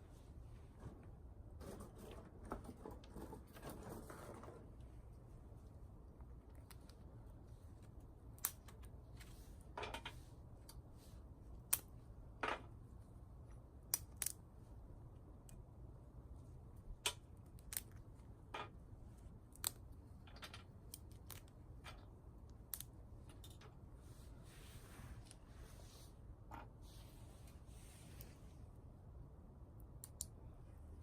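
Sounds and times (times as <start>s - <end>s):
twigs crackling and snapping: 13.9s - 14.4s, 17.5s - 18.0s, 19.5s - 19.9s.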